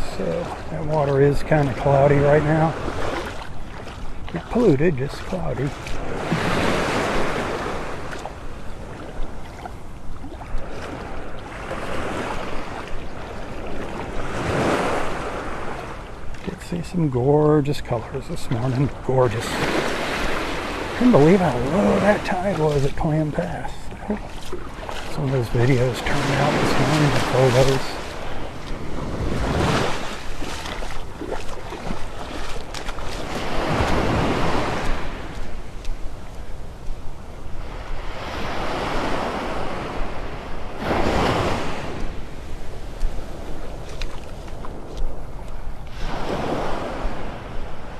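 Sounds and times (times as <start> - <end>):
waves washing onto beach: 0.0 - 47.9
wind rumbling on microphone: 17.5 - 47.9.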